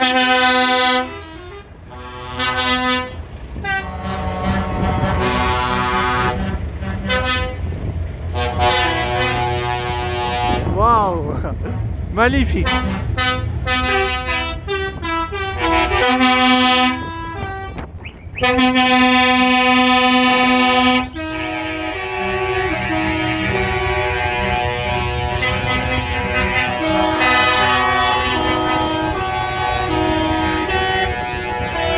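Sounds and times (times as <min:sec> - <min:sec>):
truck air horns honking: 0:00.0 - 0:31.9.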